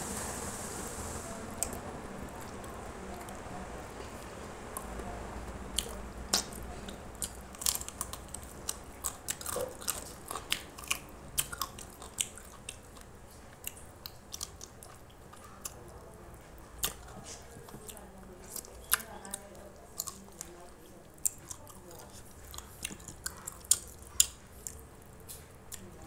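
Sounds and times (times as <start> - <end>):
person chewing chicken: 5.8 - 16.0, 16.8 - 19.4, 21.2 - 25.9.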